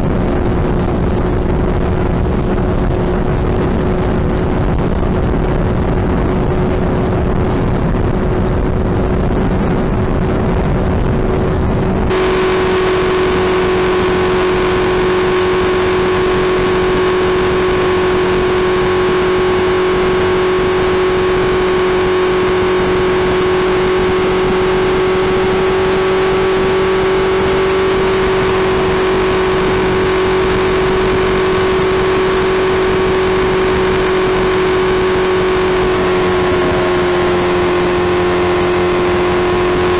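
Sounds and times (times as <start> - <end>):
wind rush on microphone: 0.0 - 39.9
motorcycle engine droning: 12.0 - 39.9.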